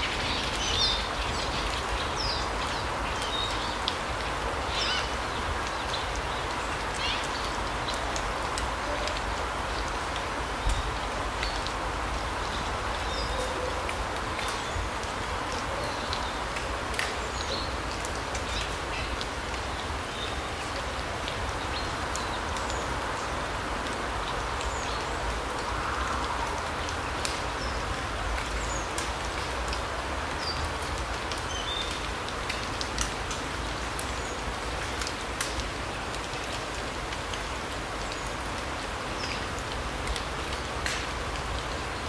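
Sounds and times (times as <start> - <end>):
light ticks: 13.8 - 19.4, 23.8 - 27.7, 28.3 - 34.2, 34.8 - 41.7.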